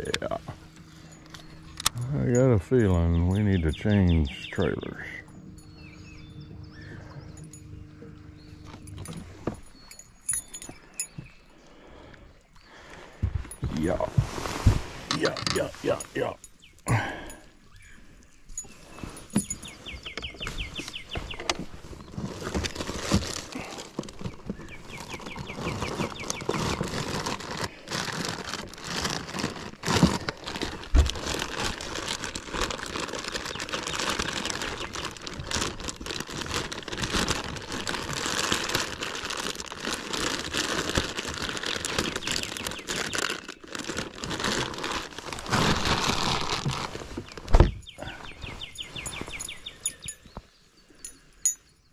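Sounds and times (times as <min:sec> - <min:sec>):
rustling and crackling: 0:12.8 - 0:16.9, 0:18.5 - 0:50.5.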